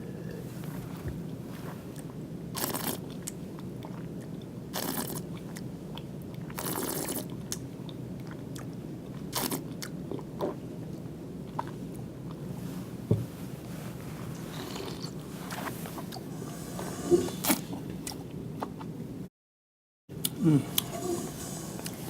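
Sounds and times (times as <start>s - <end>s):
person slurping wine: 0.0s - 0.9s, 16.1s - 17.8s, 20.3s - 22.0s.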